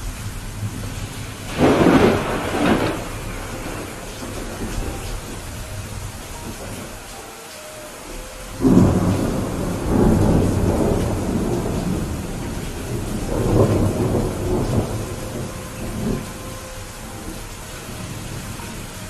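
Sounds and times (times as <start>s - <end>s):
thunderclap and rumble: 0.0s - 6.9s, 8.6s - 19.0s
steady rain: 0.0s - 19.0s.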